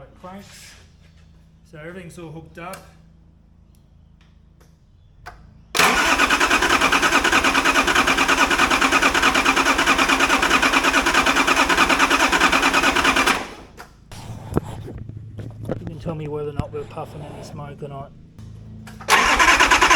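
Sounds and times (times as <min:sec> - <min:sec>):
diesel engine cranking on starter: 0:05.8 - 0:13.9, 0:18.8 - 0:19.9.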